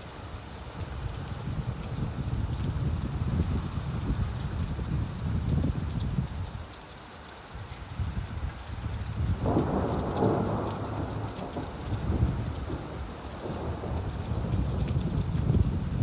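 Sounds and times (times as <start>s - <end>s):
steady rainfall: 0.0s - 16.0s
thunder rumbling: 9.2s - 16.0s.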